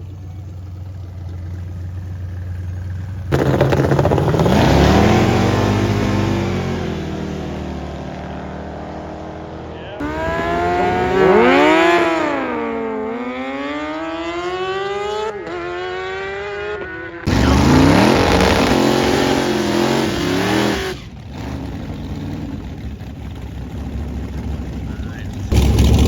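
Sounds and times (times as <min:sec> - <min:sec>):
louder engine note: 0:03.3 - 0:21.1
racing car engine accelerating: 0:03.3 - 0:23.0, 0:24.3 - 0:26.0.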